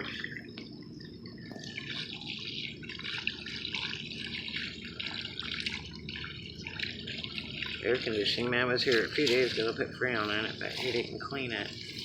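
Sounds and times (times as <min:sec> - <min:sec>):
water dripping: 0:00.0 - 0:12.0
hose water spraying on metal fins: 0:03.8 - 0:12.0.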